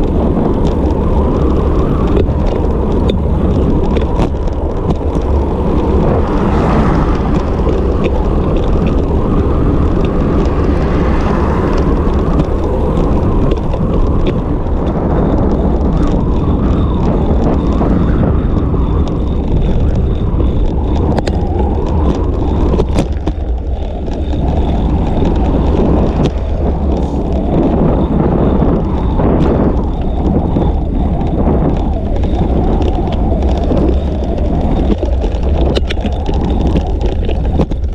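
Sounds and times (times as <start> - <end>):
road noise: 0.0 - 37.9
wind buffeting microphone: 0.0 - 37.9
small clicks and knocks: 31.7 - 37.9.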